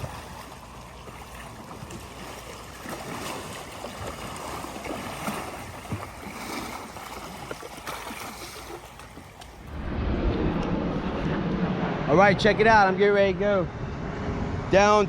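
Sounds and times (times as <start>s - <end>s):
creek water splashing and trickling: 0.0s - 9.7s
small water splashes: 0.0s - 9.7s.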